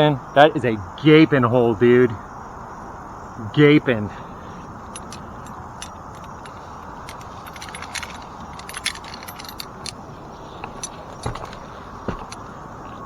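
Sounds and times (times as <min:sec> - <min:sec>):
climbing hardware clinking: 0:04.9 - 0:12.5.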